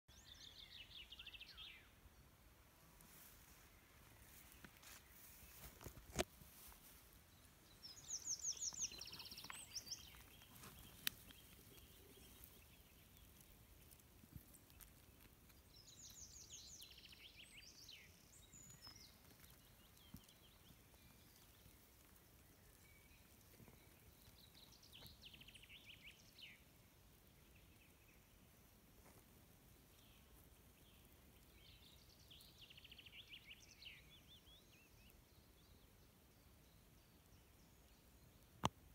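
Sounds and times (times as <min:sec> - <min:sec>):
faint outdoor background noise: 0:00.1 - 0:38.9.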